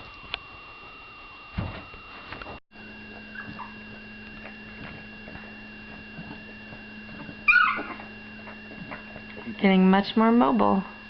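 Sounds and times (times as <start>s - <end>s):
low hum: 0.0s - 11.0s
puppy whimpering: 3.3s - 3.9s, 7.4s - 8.1s.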